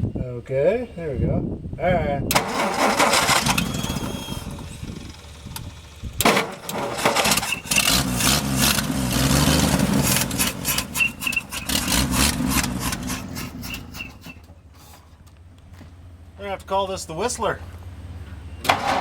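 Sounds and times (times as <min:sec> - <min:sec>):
engine running unevenly: 0:02.3 - 0:19.0
short high whistle: 0:10.7 - 0:11.8, 0:13.6 - 0:14.5.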